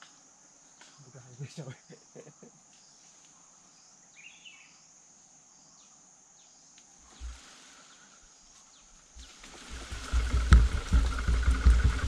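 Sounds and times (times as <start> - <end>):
faint bird chirps: 0.0 - 10.4
low bump: 9.7 - 12.0.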